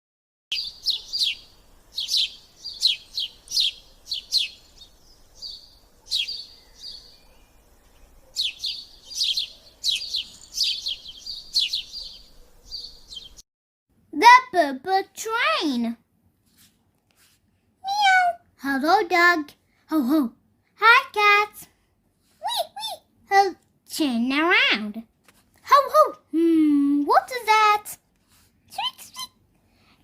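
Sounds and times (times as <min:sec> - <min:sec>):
bird chirping: 0:00.5 - 0:13.4.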